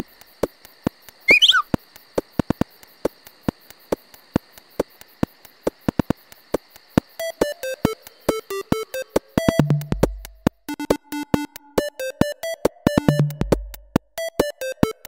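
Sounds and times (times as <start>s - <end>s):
insect drone: 0.0s - 11.6s
falling whistle sound effect: 1.3s - 1.7s.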